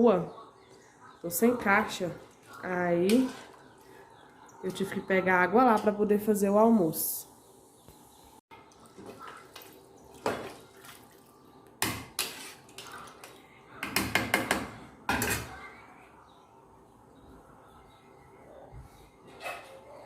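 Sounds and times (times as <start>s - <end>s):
water splashing: 8.7s - 11.3s
pots and dishes knocking: 13.8s - 15.4s.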